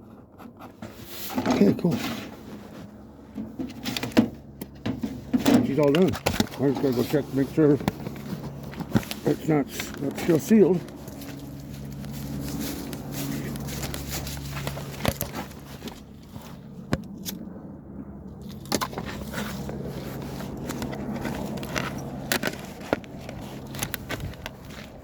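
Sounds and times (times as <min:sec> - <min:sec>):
objects knocking and scraping: 0:00.0 - 0:11.3
steady low hum: 0:00.0 - 0:25.0
footsteps: 0:05.8 - 0:16.8, 0:18.9 - 0:25.0.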